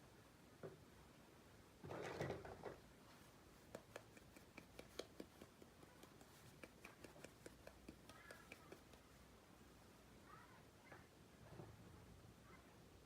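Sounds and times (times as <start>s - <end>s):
toy pieces clicking and tapping: 3.8s - 9.0s.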